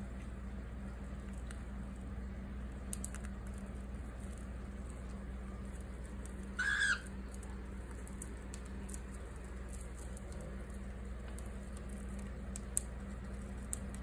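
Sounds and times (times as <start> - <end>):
cockatiel chirp: 6.6 - 7.1.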